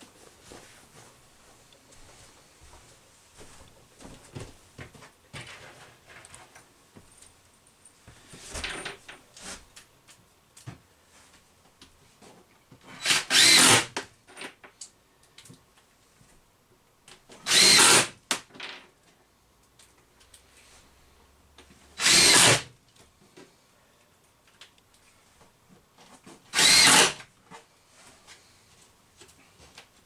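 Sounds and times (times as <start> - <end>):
power drill driving screws: 12.9 - 14.0, 17.4 - 18.2, 22.0 - 22.7, 26.5 - 27.2.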